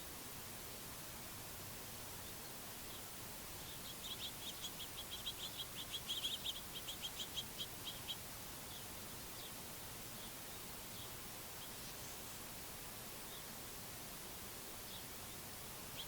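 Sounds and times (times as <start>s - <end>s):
faint outdoor hiss: 0.0s - 16.0s
songbird chip notes: 2.1s - 13.6s.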